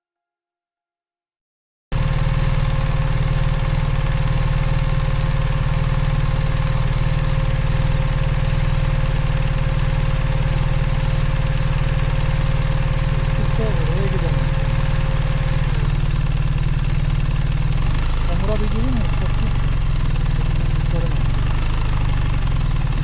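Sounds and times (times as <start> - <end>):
motorcycle engine idling: 2.0 - 23.0.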